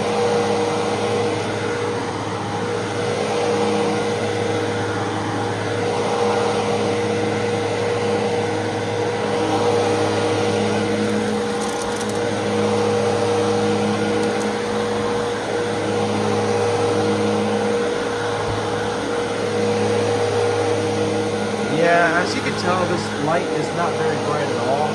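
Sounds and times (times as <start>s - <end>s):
upright vacuum cleaner running: 0.0s - 24.9s.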